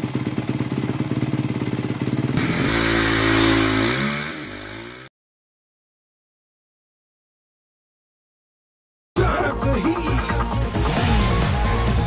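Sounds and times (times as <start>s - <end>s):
motorcycle engine revving: 0.0s - 5.1s, 10.5s - 12.0s.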